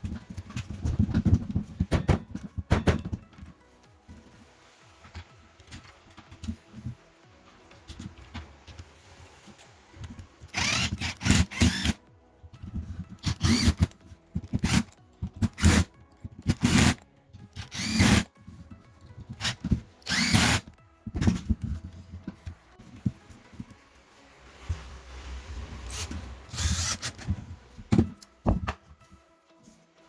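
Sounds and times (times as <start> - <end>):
rotary hammer motor bursts: 10.5 - 12.0, 13.2 - 13.9, 15.5 - 15.9, 17.6 - 18.3, 19.4 - 20.6, 25.9 - 27.2.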